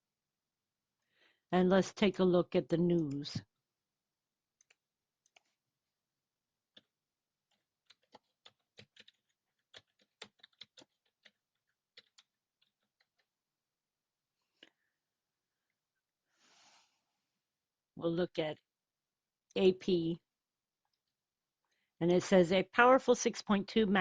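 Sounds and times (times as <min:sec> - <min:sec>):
faint keyboard typing: 0:02.9 - 0:03.5, 0:04.5 - 0:05.6, 0:06.7 - 0:13.4.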